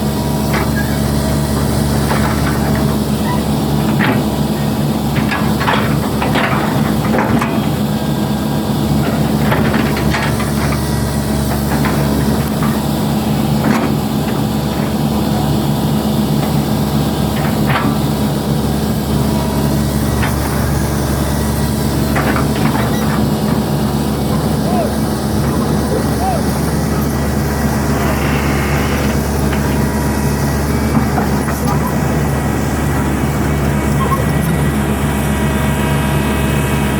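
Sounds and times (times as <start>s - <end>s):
excavator bucket clanks: 0.0s - 35.6s
excavator diesel engine running: 0.0s - 36.9s.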